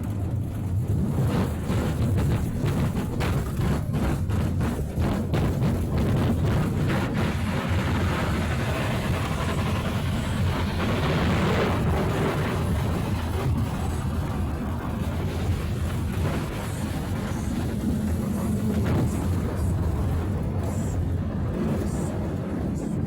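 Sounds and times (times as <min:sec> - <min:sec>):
aircraft landing roar: 0:06.7 - 0:23.0.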